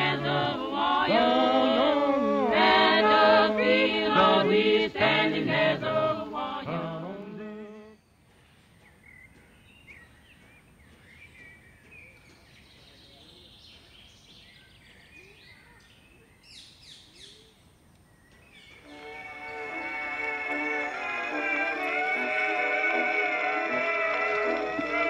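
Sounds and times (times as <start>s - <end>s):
music: 0.0s - 7.9s, 18.8s - 25.0s
chanted singing: 0.0s - 8.0s, 18.8s - 25.0s
birds chirping: 0.0s - 25.0s.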